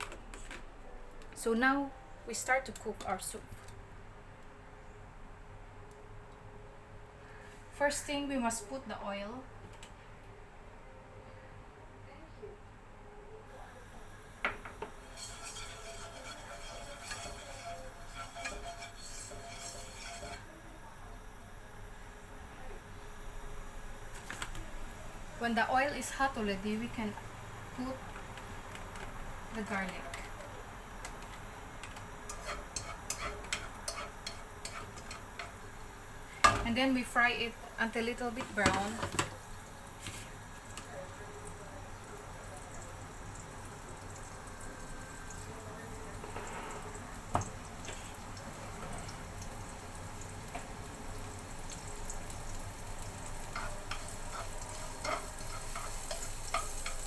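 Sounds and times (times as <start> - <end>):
garlic sizzling in oil: 14.0 - 57.0
oil crackles and pops: 24.1 - 25.0.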